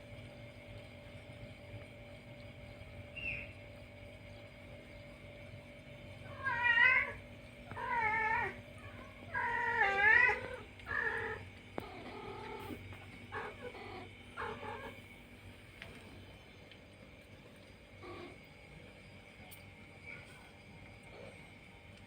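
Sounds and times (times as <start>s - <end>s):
cat meowing: 6.3s - 7.2s.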